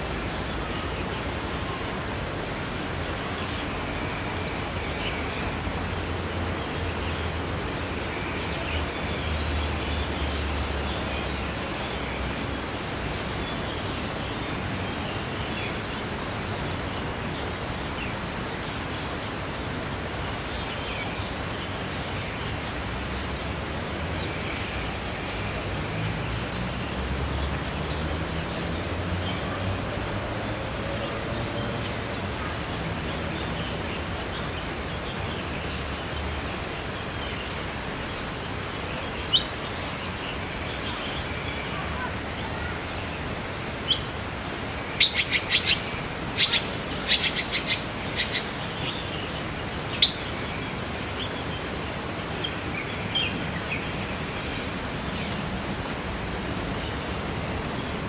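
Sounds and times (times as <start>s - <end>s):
steady background hiss: 0.0s - 58.0s
sharp clicking bird calls: 45.0s - 48.6s.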